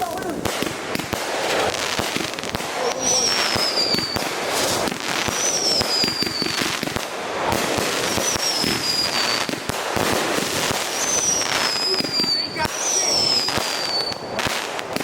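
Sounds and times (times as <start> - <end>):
fireworks crackling pops: 0.0 - 15.0
descending firework whistle: 1.0 - 15.0.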